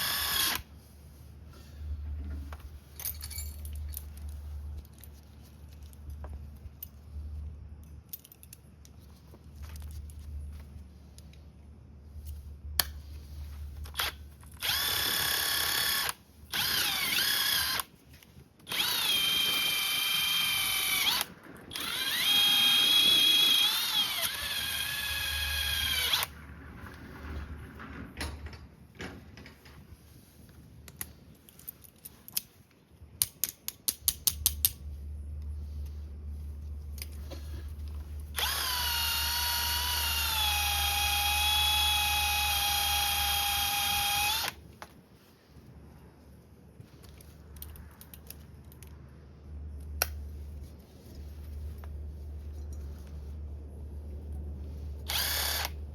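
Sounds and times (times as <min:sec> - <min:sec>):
power tool motor whining: 0:00.0 - 0:00.7, 0:13.9 - 0:17.9, 0:18.7 - 0:26.4, 0:38.3 - 0:44.6, 0:55.1 - 0:55.8.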